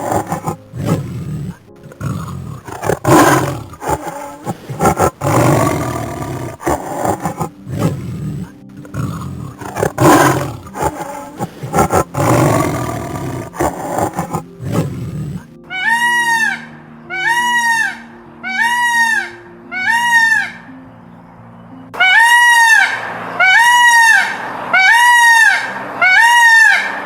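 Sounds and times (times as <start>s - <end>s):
big cat roaring: 0.0s - 15.5s
bird calls: 0.0s - 16.6s
faint background music: 0.0s - 27.0s.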